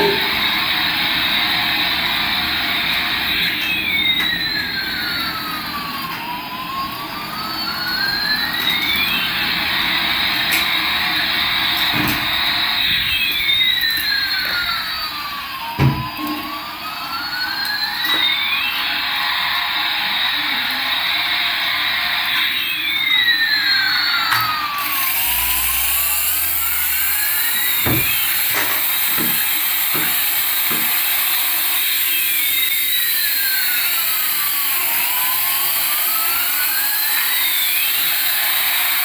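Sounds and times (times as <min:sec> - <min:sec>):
toy jet engine sound effect: 0:00.0 - 0:39.0.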